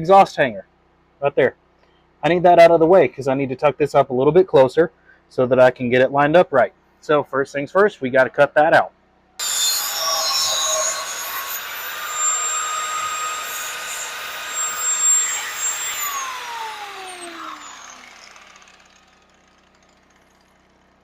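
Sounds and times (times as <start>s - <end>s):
cut-off wheel grinding metal: 9.4s - 21.0s.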